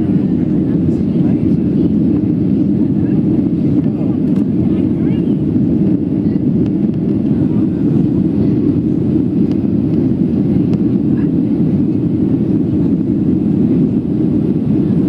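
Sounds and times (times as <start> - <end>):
airplane cabin drone: 0.0 - 15.0.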